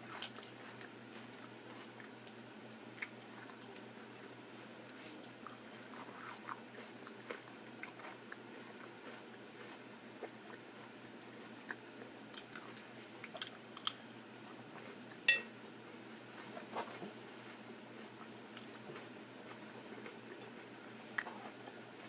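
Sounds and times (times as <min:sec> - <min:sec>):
chewing food: 0:00.0 - 0:22.0
sharp ringing click: 0:15.3 - 0:15.5.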